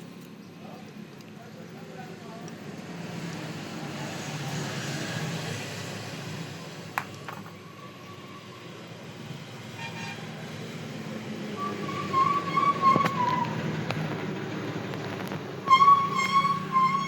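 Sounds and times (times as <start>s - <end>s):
street traffic: 0.0s - 17.0s
vehicle horn tooting: 9.8s - 10.4s, 15.6s - 17.0s.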